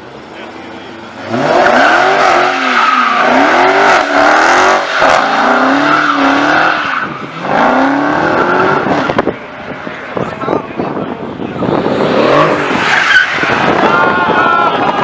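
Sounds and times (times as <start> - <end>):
car engine revving hard: 1.2 - 9.4, 11.7 - 14.0
tyre squeal: 12.6 - 13.9.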